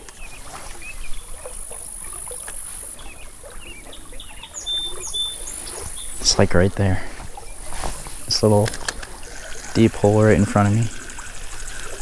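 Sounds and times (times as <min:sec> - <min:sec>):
stream water trickling: 0:00.0 - 0:12.0
steady high tone: 0:10.0 - 0:11.2.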